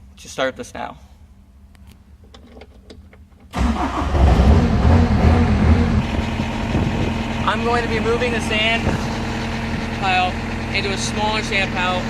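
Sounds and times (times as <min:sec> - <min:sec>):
diesel engine starting and running: 0:03.5 - 0:12.0.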